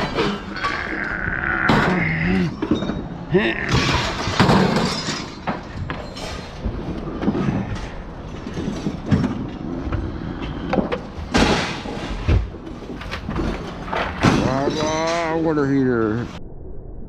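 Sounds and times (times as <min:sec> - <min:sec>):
scrap metal clanking: 0:02.6 - 0:15.7.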